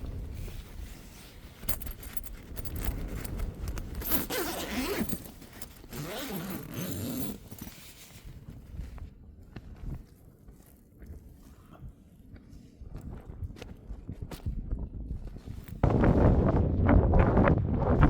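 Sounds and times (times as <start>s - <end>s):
low rumble of wind: 0.0s - 18.0s
tent zip being pulled: 1.9s - 8.2s.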